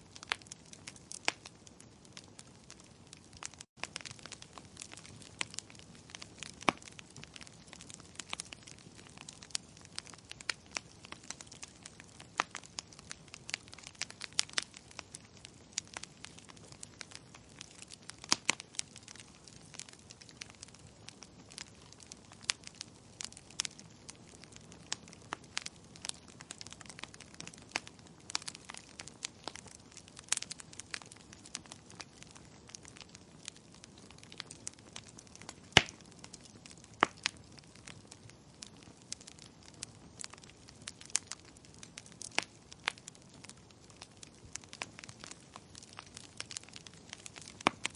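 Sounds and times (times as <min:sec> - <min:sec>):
wood fire crackling and popping: 0:00.0 - 0:47.9.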